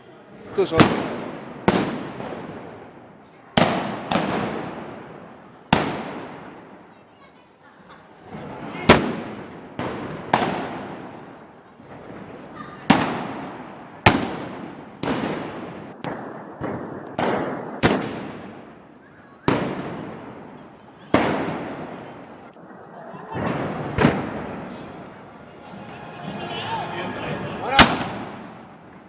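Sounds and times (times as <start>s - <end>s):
loud gunshot bangs echoing: 0.6s - 2.7s, 12.9s - 18.7s, 27.7s - 28.6s.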